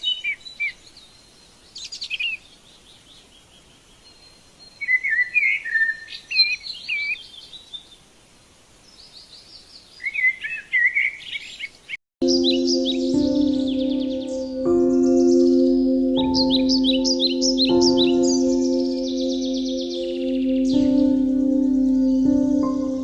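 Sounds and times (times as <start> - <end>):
birds chirping and warbling: 0.0 - 8.0, 8.9 - 23.0.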